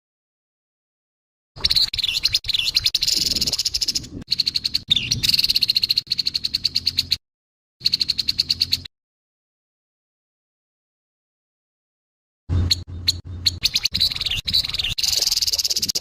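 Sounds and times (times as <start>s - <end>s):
bird rasping rattle calls: 1.6s - 7.2s, 7.8s - 8.9s, 12.7s - 16.0s.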